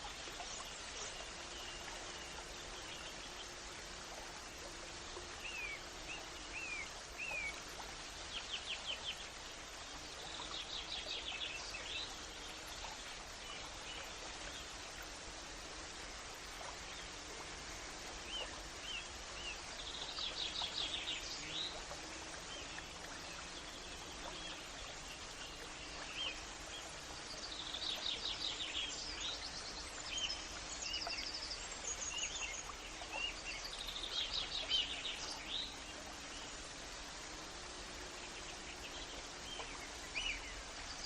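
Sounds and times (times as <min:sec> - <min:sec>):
steady background hiss: 0:00.0 - 0:41.0.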